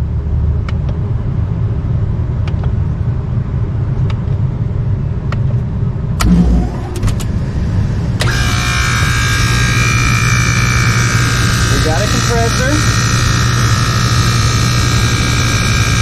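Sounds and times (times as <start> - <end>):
low rumble: 0.0 - 16.0
compressor buzzing whine: 6.2 - 16.0.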